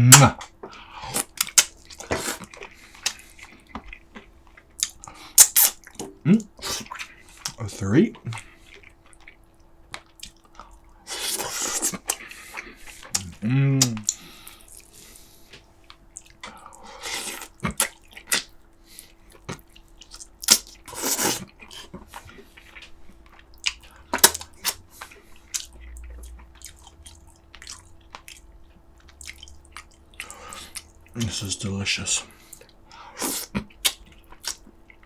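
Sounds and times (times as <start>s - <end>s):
person chewing: 0.1s - 35.0s
short slurps: 11.1s - 13.3s, 20.9s - 21.9s.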